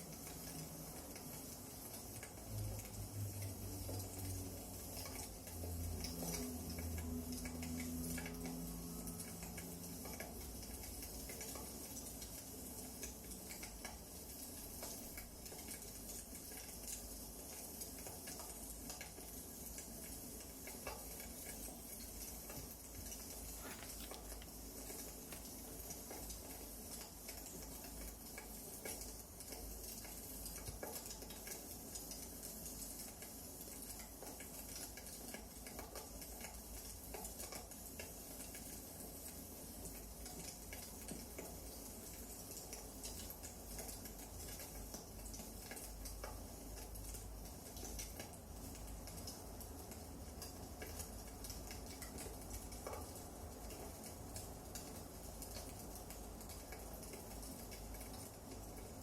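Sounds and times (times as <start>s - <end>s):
wood fire crackling: 20.4s - 31.4s.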